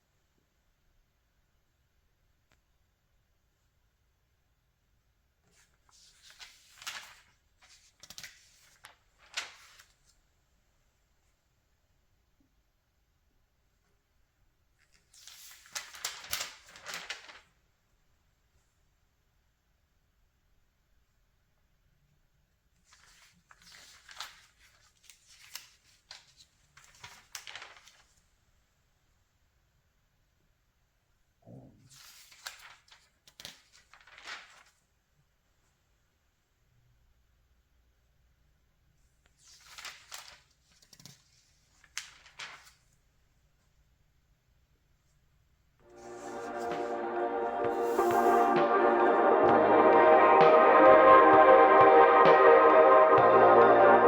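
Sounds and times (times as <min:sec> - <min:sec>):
magazine pages rustling and turning: 0:05.5 - 0:10.1, 0:14.9 - 0:17.5, 0:39.4 - 0:43.0.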